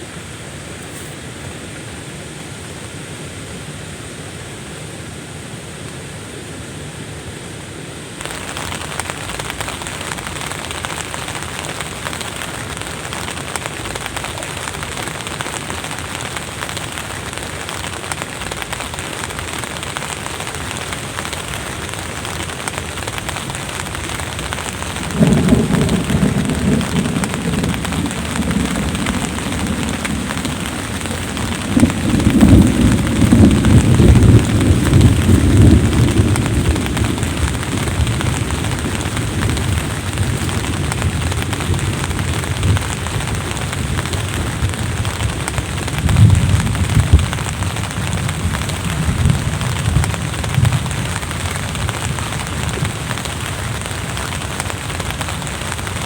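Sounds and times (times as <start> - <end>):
steady rain: 0.0 - 56.0
thunder rolling: 20.8 - 54.4.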